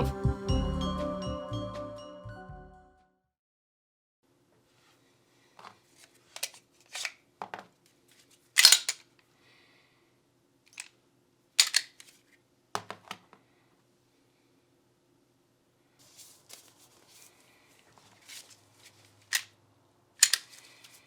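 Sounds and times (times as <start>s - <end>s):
small hard parts clicking: 8.6s - 9.0s, 11.6s - 12.1s, 20.2s - 20.6s.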